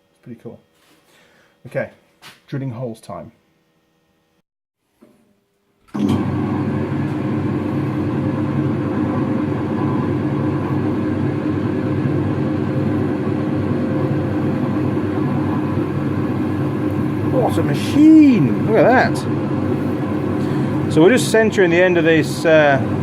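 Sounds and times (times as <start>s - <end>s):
metal lathe motor humming: 5.9s - 23.0s.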